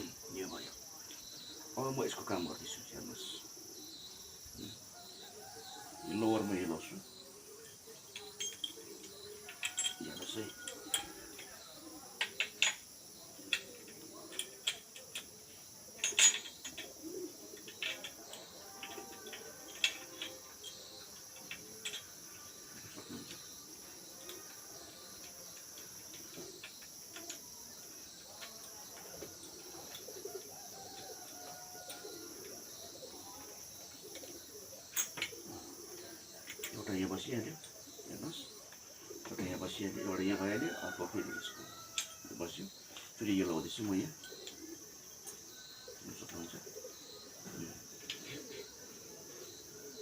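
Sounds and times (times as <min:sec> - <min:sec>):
high insect trill: 0:00.0 - 0:50.0
metal parts clicking and tapping: 0:08.1 - 0:11.6, 0:12.2 - 0:12.9, 0:13.5 - 0:15.4, 0:16.0 - 0:17.0, 0:17.6 - 0:22.2, 0:25.0 - 0:27.5.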